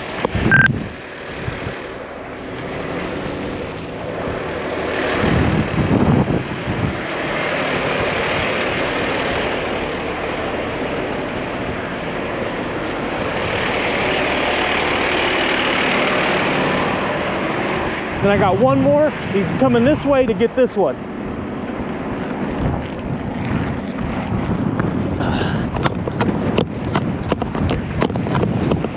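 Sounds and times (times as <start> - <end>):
vehicle engine running: 0.0 - 28.9.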